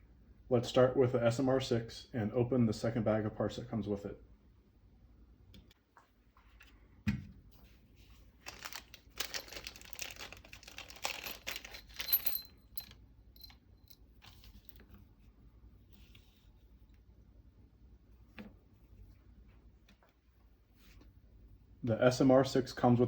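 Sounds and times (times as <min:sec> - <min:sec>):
plastic bag tearing and crinkling: 0:08.4 - 0:12.0
small metal parts clinking: 0:08.5 - 0:14.8.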